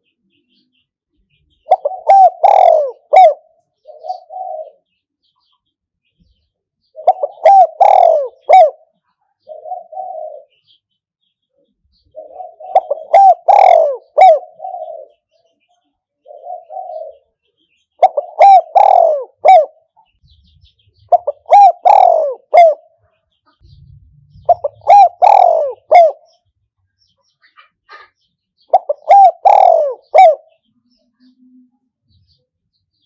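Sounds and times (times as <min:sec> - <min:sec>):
dove cooing: 0:01.6 - 0:04.9, 0:06.9 - 0:10.8, 0:12.0 - 0:15.3, 0:16.2 - 0:17.4, 0:18.0 - 0:19.9, 0:20.7 - 0:23.0, 0:23.7 - 0:26.4, 0:28.0 - 0:30.6.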